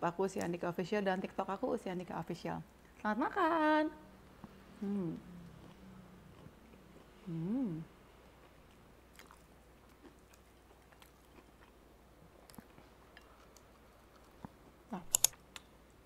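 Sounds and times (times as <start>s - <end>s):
person chewing food: 5.2s - 7.6s, 8.2s - 15.7s.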